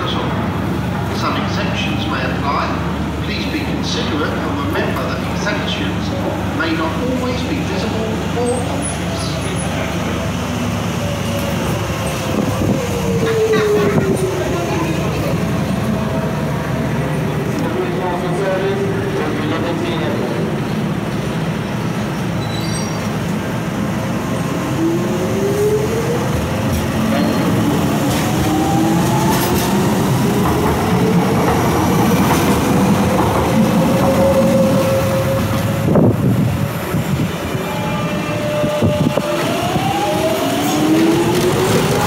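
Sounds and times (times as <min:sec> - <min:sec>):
train wheels rolling: 0:26.3 - 0:37.2.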